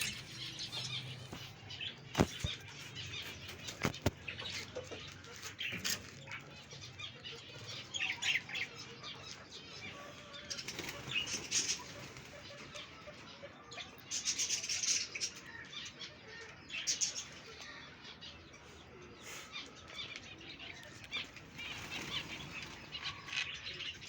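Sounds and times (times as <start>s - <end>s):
budgerigars chirping and chattering: 0.0s - 24.0s
wings flapping: 10.5s - 12.5s, 21.4s - 23.2s.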